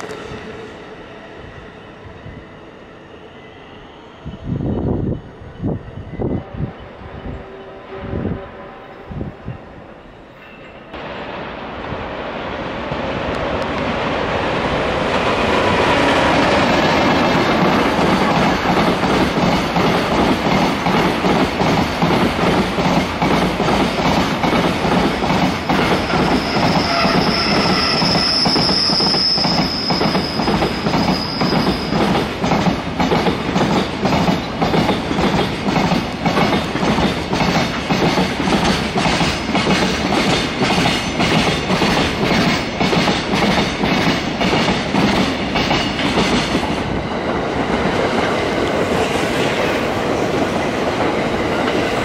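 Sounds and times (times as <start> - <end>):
freight train wheels clacking: 13.0 - 52.0
high wheel squeal: 25.8 - 32.2.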